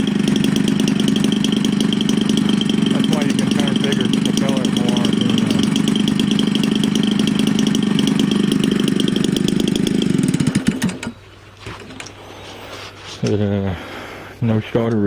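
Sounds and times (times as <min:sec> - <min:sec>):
engine sputtering to a stop: 0:00.0 - 0:12.2
small two-stroke engine running: 0:00.0 - 0:12.2.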